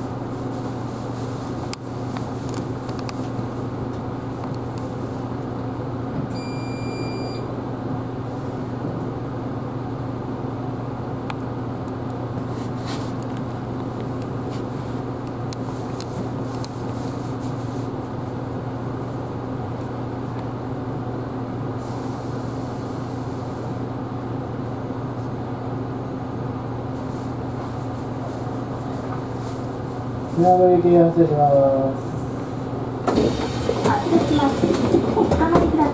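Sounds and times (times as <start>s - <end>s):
bus engine humming: 0.0s - 6.4s, 7.5s - 35.9s
short high electronic beep: 6.4s - 7.4s.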